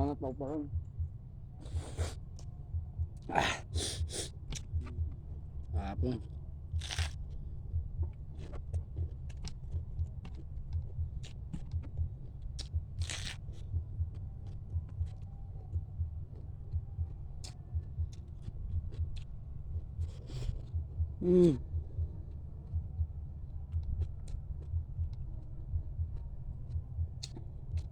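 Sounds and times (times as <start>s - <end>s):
short breathy bursts: 1.6s - 2.2s, 3.3s - 4.3s
chewing thuds: 6.7s - 21.2s.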